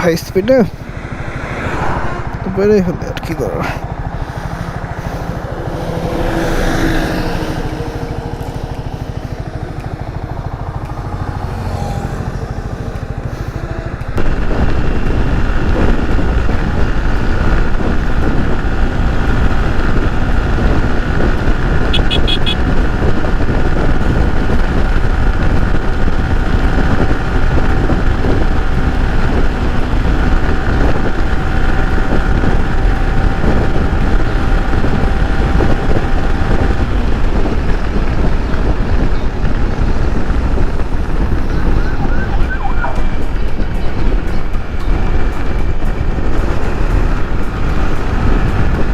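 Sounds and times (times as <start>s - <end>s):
wind and road noise: 0.0s - 48.9s
motorcycle engine running: 0.1s - 48.9s
short high beeps: 22.0s - 22.6s.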